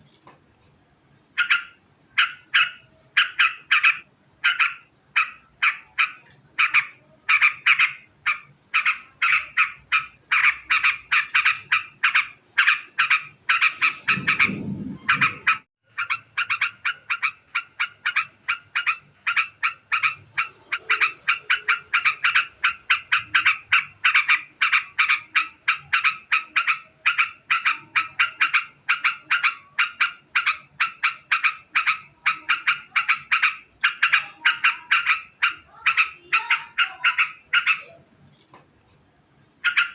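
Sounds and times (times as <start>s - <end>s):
bulbul chattering: 1.4s - 37.9s
short low rumble: 14.0s - 15.5s.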